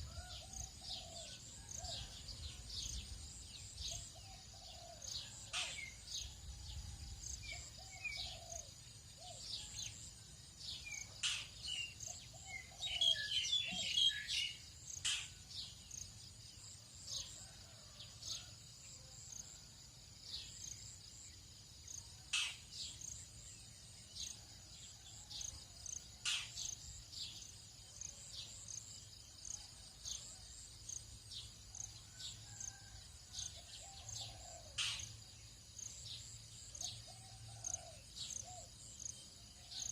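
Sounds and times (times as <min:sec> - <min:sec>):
insects droning: 0:00.0 - 0:39.9
birds chirping and calling: 0:03.9 - 0:06.1, 0:10.8 - 0:15.4.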